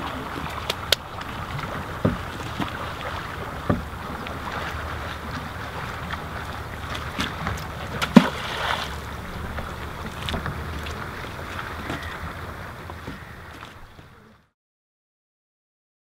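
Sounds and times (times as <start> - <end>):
water noise: 0.0 - 14.5
small knocks: 2.0 - 2.8, 3.6 - 3.9.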